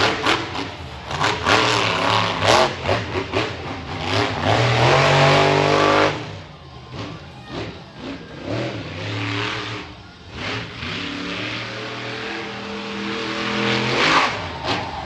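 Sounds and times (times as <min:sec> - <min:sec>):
truck engine revving hard: 0:00.0 - 0:15.0.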